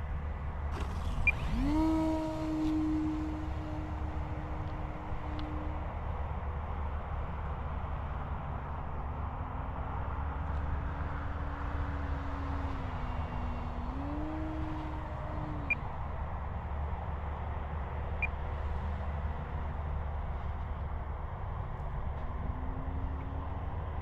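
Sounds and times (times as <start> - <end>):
model plane motor whine: 0.7 - 6.3, 11.3 - 16.8.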